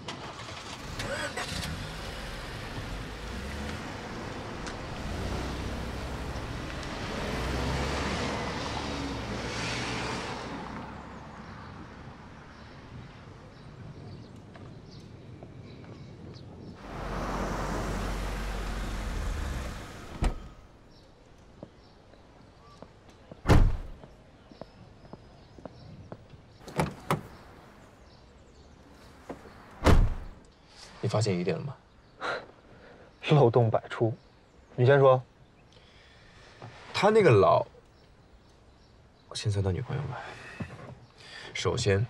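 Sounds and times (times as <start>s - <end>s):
car engine driving off: 0.0s - 10.9s, 16.8s - 20.9s
rush of vehicle noise: 0.1s - 13.2s, 16.8s - 20.9s.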